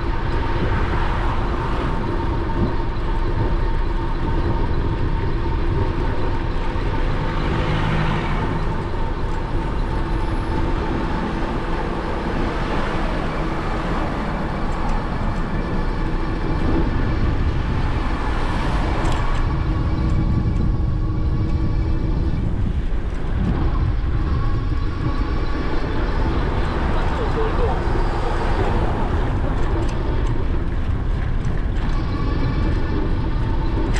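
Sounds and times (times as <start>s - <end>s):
faint whining tones: 0.0s - 33.9s
wind and road rumble: 0.0s - 33.9s.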